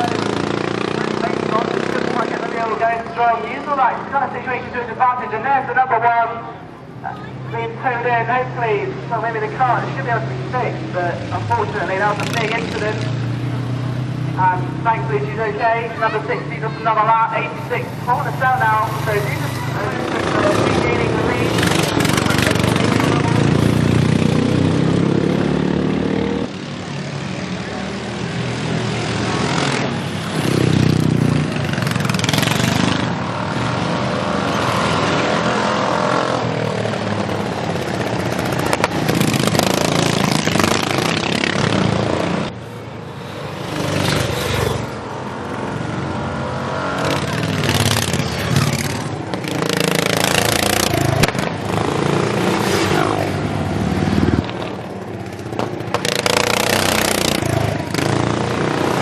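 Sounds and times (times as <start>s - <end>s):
lawnmower engines revving past: 0.0s - 3.0s, 17.6s - 59.0s.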